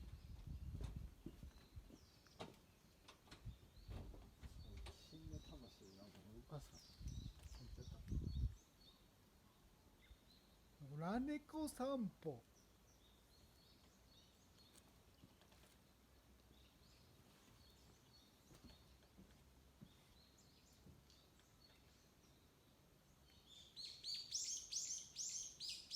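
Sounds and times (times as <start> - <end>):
faint bird chirps: 19.8 - 25.9.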